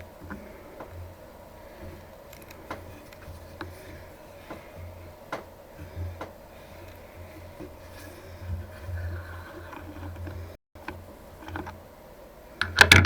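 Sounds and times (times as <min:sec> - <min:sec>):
metallic ticks of tap cutting threads: 0:00.0 - 0:11.8, 0:12.6 - 0:13.0.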